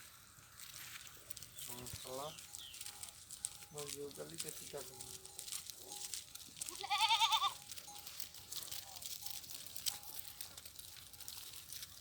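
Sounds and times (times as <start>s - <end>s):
sheep or goat bleating: 6.6s - 7.8s.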